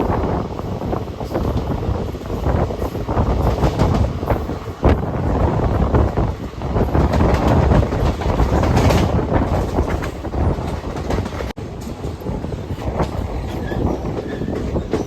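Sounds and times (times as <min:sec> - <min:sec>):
train rumble: 0:00.0 - 0:15.0
train wheels clattering over rail joints: 0:01.2 - 0:15.0.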